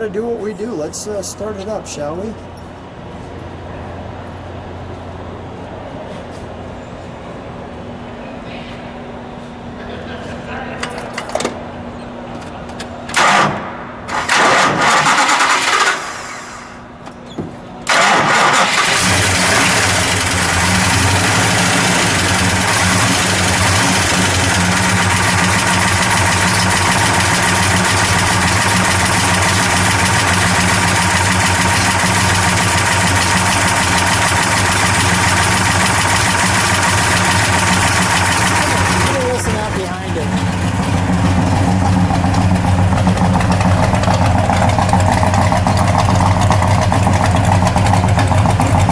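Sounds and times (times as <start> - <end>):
car engine starting and idling: 12.7 - 17.0, 17.8 - 48.9.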